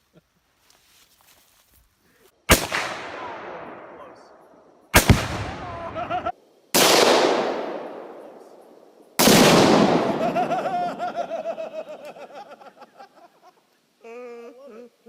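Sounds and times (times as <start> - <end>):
explosive blasts: 2.5 - 4.4, 5.0 - 8.2, 9.2 - 10.5.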